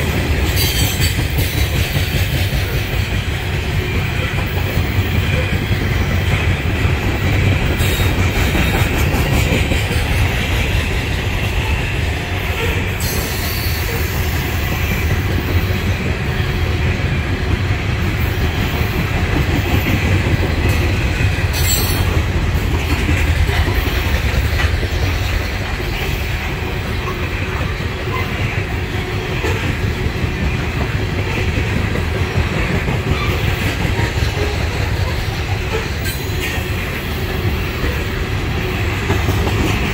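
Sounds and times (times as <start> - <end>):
freight train wheels rumbling on rails: 0.0 - 39.9
wheel clatter over rail joints: 18.1 - 37.2.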